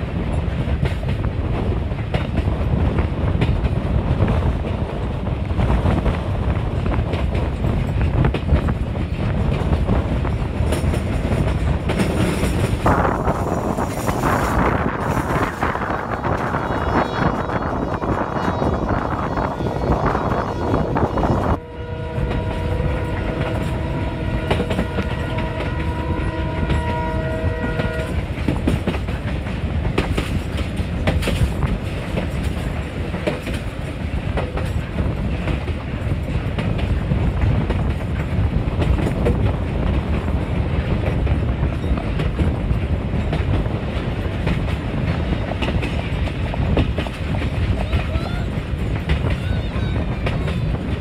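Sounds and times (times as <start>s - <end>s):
carriages rumbling on track: 0.0s - 51.0s
wheels clicking over rail joints: 0.2s - 21.6s, 22.2s - 51.0s
train horn chord: 21.6s - 28.2s.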